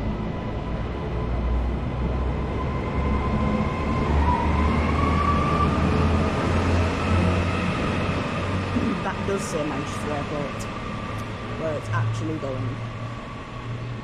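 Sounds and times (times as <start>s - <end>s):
low train rumble: 0.0s - 14.0s.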